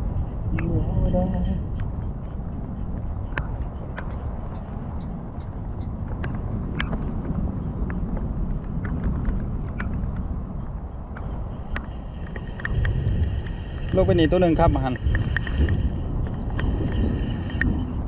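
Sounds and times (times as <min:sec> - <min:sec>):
wind rumble on microphone: 0:00.0 - 0:18.0
sharp ticks of rain: 0:05.0 - 0:17.8.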